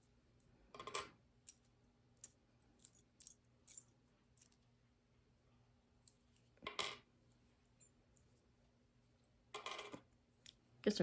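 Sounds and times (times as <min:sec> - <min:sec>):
metal charms clinking: 0:00.9 - 0:04.6.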